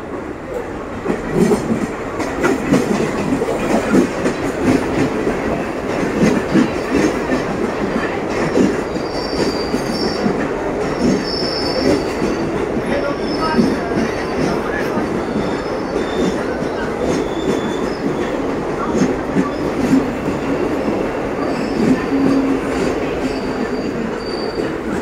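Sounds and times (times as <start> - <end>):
train coaches rolling past: 0.0 - 25.0
high wheel squeal: 9.0 - 13.9, 15.2 - 18.4, 21.4 - 24.9.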